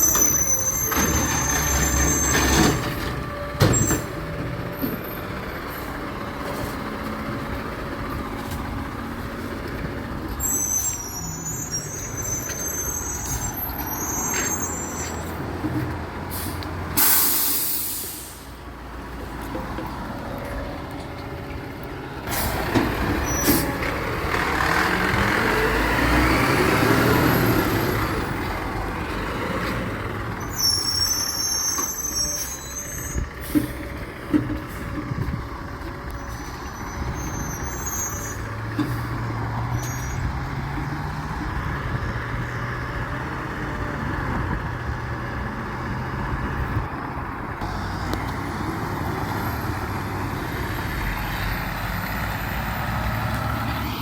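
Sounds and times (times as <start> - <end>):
brake squeals: 0.0 - 48.4, 49.0 - 54.0
air hissing: 16.3 - 18.6.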